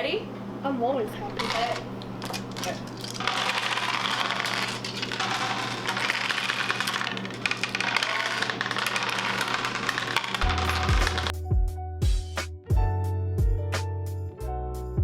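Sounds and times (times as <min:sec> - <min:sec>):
dice clattering on a tabletop: 0:01.4 - 0:11.3.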